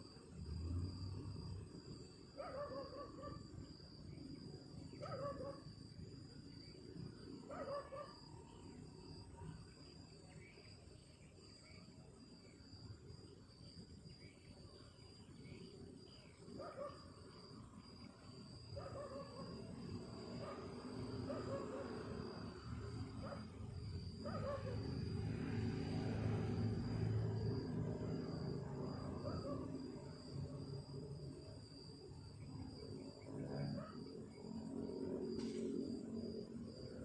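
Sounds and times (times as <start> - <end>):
high insect trill: 0.0 - 37.0.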